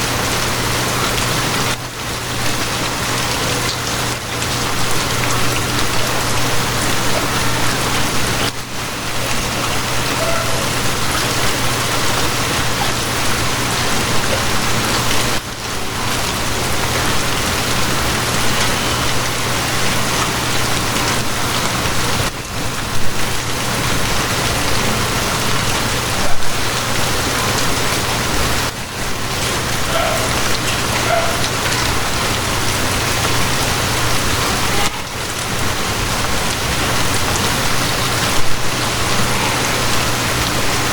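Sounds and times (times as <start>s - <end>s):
heavy rainfall: 0.0s - 40.9s.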